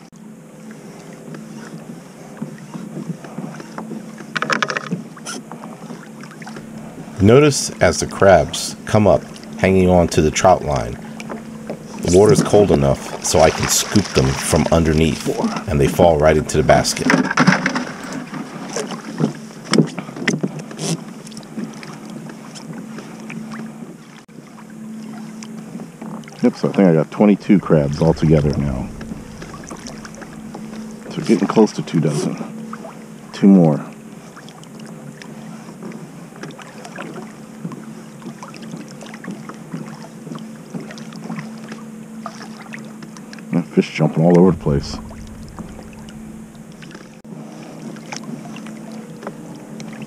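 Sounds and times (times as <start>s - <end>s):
faint steady hum: 5.0s - 19.7s, 20.6s - 36.5s, 39.5s - 50.0s
water splashing: 6.4s - 17.2s, 27.4s - 31.7s, 44.4s - 47.2s
water splashes and drips: 11.2s - 15.6s.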